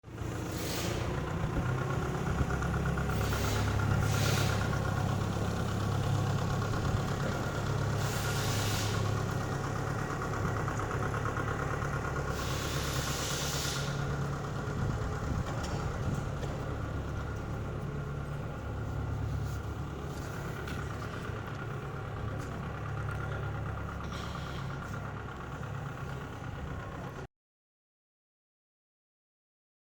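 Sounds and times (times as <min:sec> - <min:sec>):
tractor engine running: 0:00.0 - 0:27.3
short rushes of hiss: 0:00.5 - 0:01.2, 0:03.2 - 0:04.7, 0:08.0 - 0:09.2, 0:12.3 - 0:14.1.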